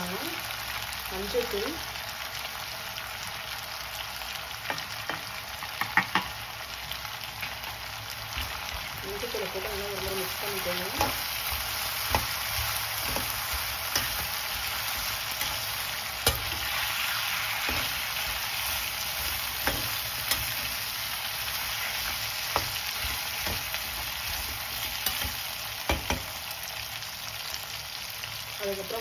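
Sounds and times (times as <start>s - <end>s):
food sizzling in hot oil: 0.0s - 29.0s
spatula knocking and scraping pan: 4.7s - 6.4s, 9.7s - 16.9s, 17.6s - 20.8s, 21.8s - 26.4s.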